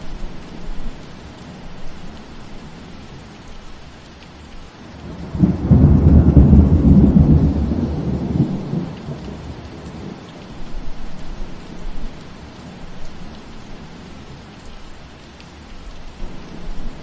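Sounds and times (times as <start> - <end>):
steady rain falling: 0.0 - 17.0
deep roll of thunder: 5.0 - 10.2.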